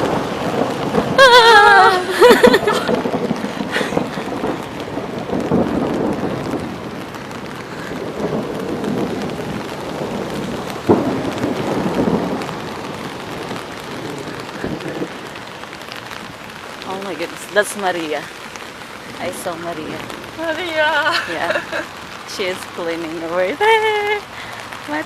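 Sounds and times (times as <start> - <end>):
sharp thunder crack: 0.0 - 16.2
steady rain falling: 0.0 - 25.0
thunder rumbling: 0.0 - 25.0.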